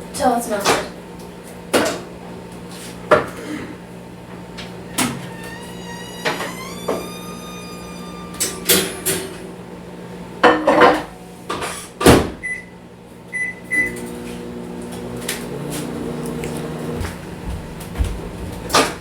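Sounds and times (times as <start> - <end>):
microwave oven humming: 0.0 - 19.0
microwave door and dish clatter: 8.4 - 9.5
short keypad beeps: 13.4 - 13.9.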